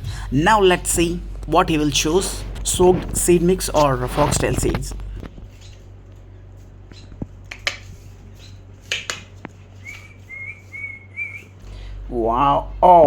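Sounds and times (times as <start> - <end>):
sharp clicks and taps: 8.8 - 9.6
pet bird whistling: 9.8 - 11.9.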